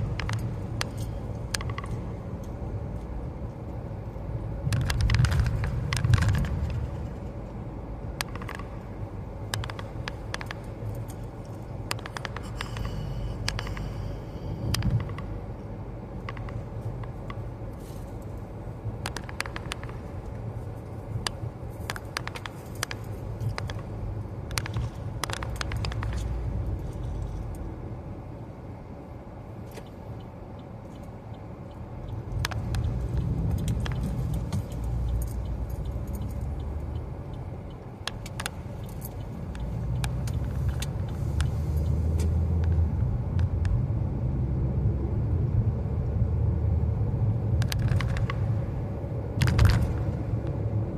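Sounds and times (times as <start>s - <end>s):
car road and engine rumble: 0.0s - 50.9s.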